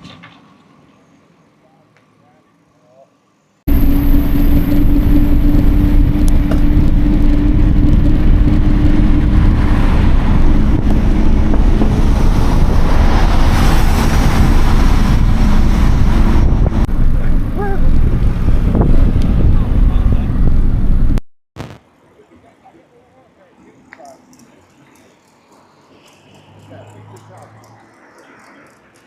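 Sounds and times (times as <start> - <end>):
steady hum: 3.7 - 9.6
wind buffeting microphone: 3.7 - 21.2.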